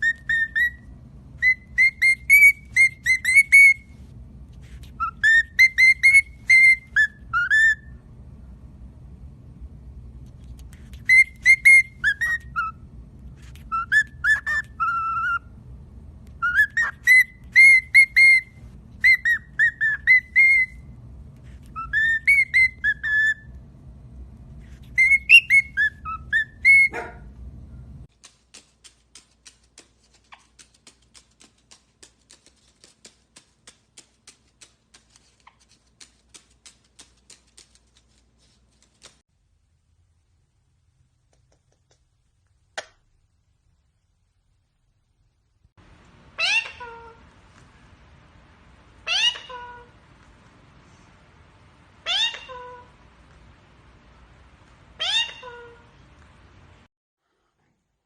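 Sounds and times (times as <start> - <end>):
pet bird whistling: 0.0 - 4.0, 4.9 - 8.0, 10.9 - 12.8, 13.5 - 15.5, 16.4 - 20.9, 21.6 - 23.5, 24.8 - 27.2
low steady hum: 0.0 - 58.0.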